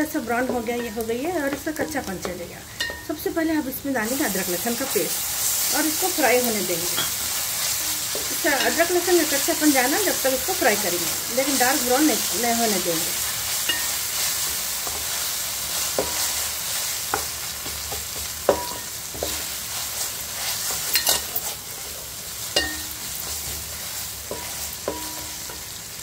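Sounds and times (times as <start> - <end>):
onions sizzling in a pot: 0.0 - 26.0
spatula knocking on pot: 15.9 - 16.3, 17.1 - 19.5, 24.2 - 25.7.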